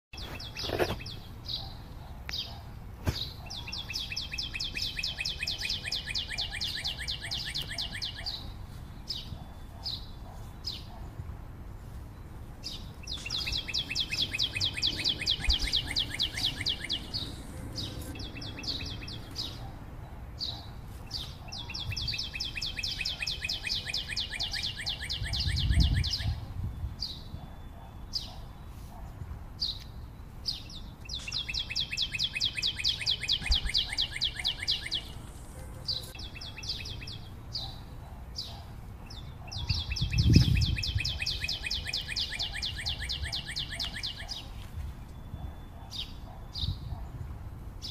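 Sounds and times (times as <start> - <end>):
bird chirps: 0.2 - 11.2, 11.9 - 47.2
songbird trilling: 3.2 - 11.0, 12.2 - 19.8, 20.4 - 28.6, 29.6 - 47.1.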